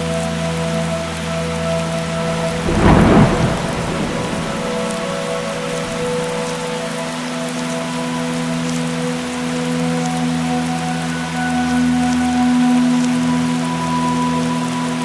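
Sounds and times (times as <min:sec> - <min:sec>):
steady rain: 0:00.0 - 0:15.0
thunder clap rumbling: 0:02.0 - 0:07.2.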